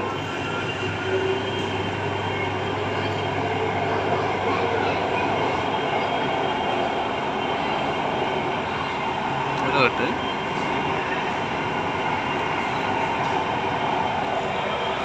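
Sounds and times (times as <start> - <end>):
train wheels on rail: 0.0 - 15.0.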